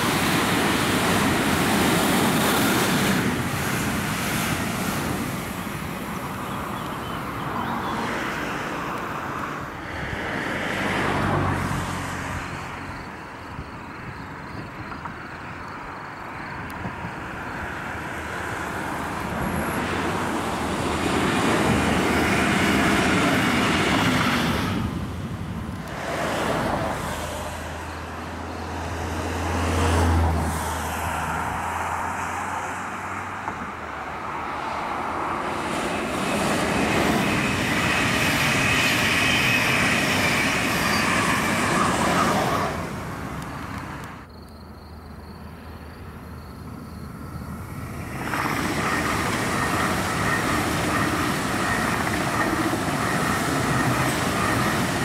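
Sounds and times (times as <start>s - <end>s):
train wheels rumbling on rails: 0.0s - 7.0s, 14.3s - 32.2s, 33.4s - 44.2s, 46.4s - 55.0s.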